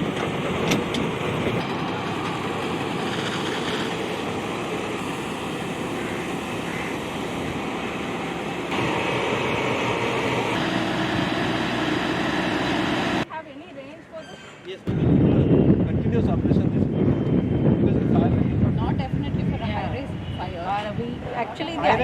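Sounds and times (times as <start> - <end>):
fire truck mechanical running noise: 0.0 - 13.3, 14.9 - 18.8.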